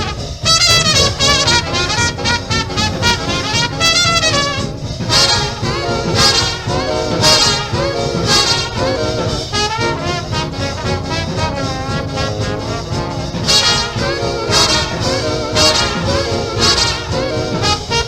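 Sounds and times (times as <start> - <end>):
brass section playing swing jazz: 0.0 - 18.0
driving rhythm section: 0.0 - 18.0.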